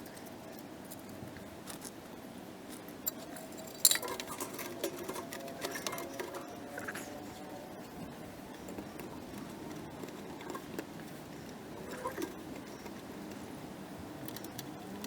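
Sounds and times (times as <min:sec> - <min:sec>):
metal tools clicking and clinking: 0:02.9 - 0:07.2.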